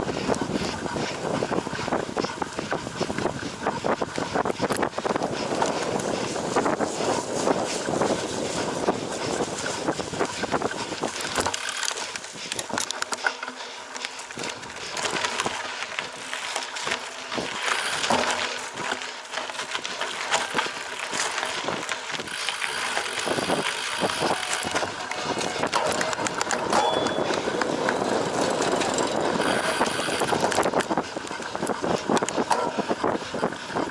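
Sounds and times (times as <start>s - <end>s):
bike knocking and rattling: 0.0s - 33.9s
bike tyres rushing on dirt: 0.0s - 33.9s.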